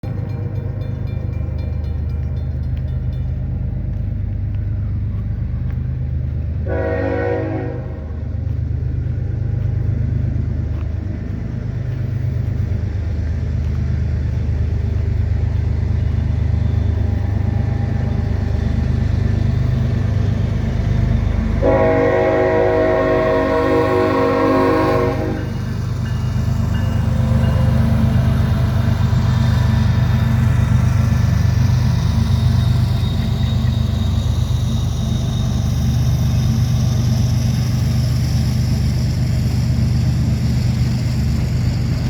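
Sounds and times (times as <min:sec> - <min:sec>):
diesel locomotives rumbling: 0:00.0 - 0:42.0
train horn blasts: 0:06.6 - 0:08.2, 0:21.5 - 0:25.8.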